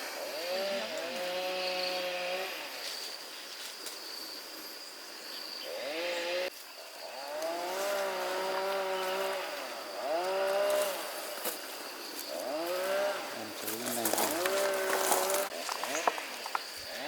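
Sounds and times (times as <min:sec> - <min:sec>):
small petrol engine revving: 0:00.0 - 0:02.8, 0:05.6 - 0:11.4, 0:12.3 - 0:17.0
high insect drone: 0:00.0 - 0:17.0.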